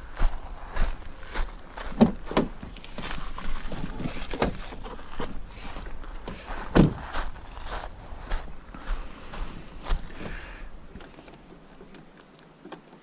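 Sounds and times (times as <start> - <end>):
footsteps: 0.0 - 12.4
car hood clicks and clunks: 1.9 - 2.9, 3.9 - 5.4.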